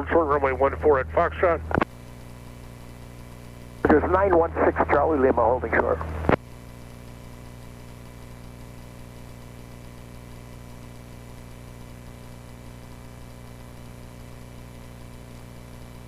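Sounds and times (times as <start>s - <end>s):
radio calls: 0.0s - 1.8s, 3.8s - 6.4s
airplane engine drone: 0.0s - 1.9s, 3.8s - 6.4s.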